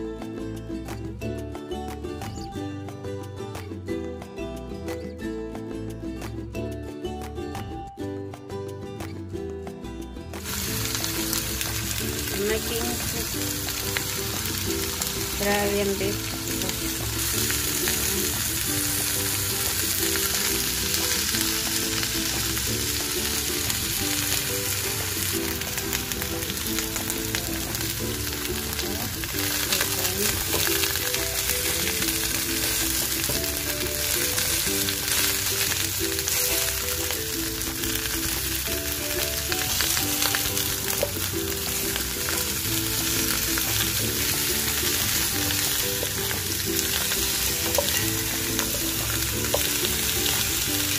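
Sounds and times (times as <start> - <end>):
bones sizzling in a hot pot: 10.4 - 50.9.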